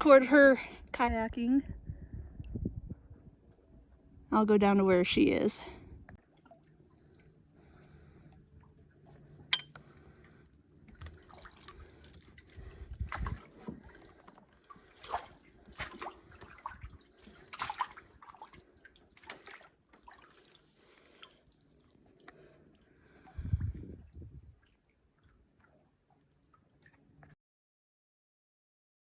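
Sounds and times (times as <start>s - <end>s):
water dripping and splashing: 6.1s - 27.4s.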